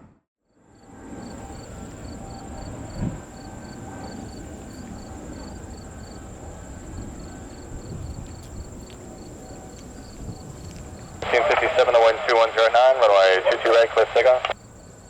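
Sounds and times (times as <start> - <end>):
insects droning high-pitched: 0.6 - 11.3, 14.6 - 15.0
insect chirps: 1.2 - 11.2.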